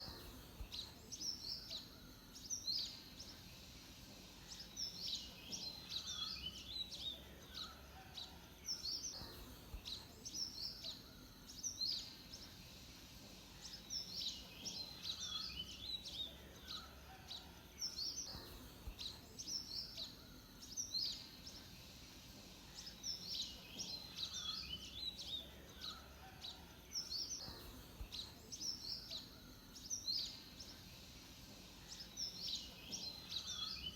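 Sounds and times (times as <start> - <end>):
faint background noise: 0.0 - 33.9
songbird high chirping: 0.0 - 33.9.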